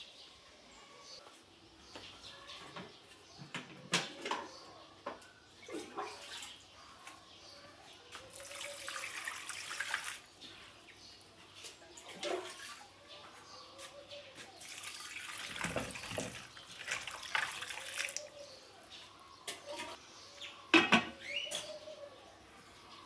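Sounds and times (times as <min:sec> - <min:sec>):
water running from a tap: 0:08.3 - 0:10.3, 0:14.6 - 0:18.3.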